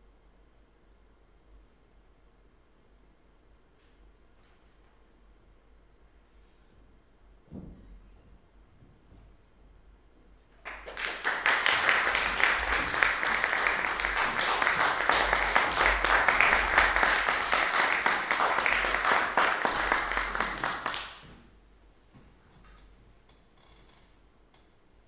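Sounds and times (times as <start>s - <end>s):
audience applauding: 10.6s - 21.3s.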